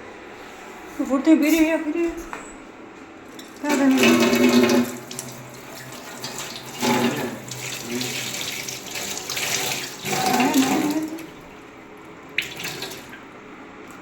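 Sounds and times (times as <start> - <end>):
tap water running into sink: 3.3 - 11.5, 12.3 - 13.3.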